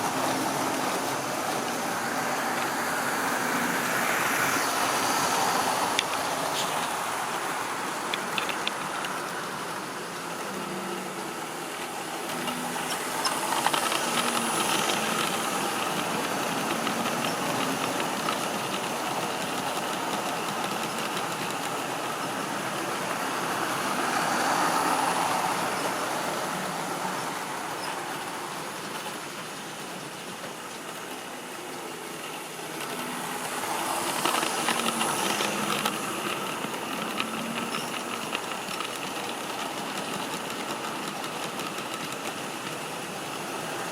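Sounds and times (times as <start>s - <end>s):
model train motor humming: 0.0s - 43.9s
wheels clicking over rail joints: 0.0s - 43.9s.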